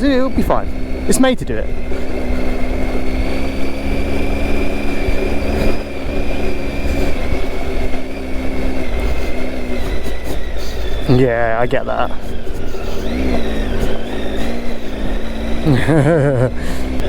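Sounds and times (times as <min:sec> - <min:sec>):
motorcycle engine running: 0:00.0 - 0:17.0
wind and riding noise: 0:00.0 - 0:17.0.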